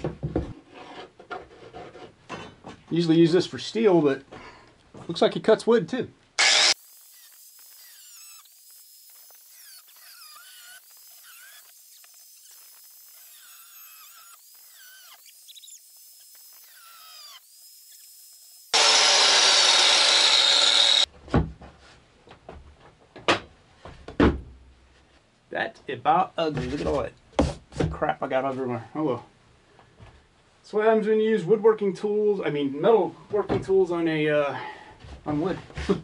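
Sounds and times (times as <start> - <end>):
power tool cutting wood panel: 6.4 - 21.1.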